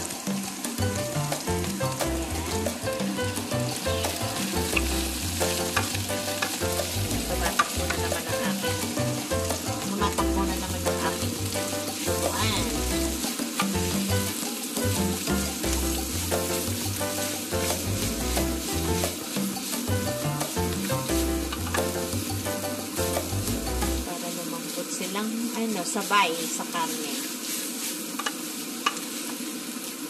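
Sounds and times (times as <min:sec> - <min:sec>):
background music: 0:00.0 - 0:24.1
food sizzling in a frying pan: 0:00.0 - 0:30.0
wooden spatula scraping pan: 0:02.6 - 0:14.4.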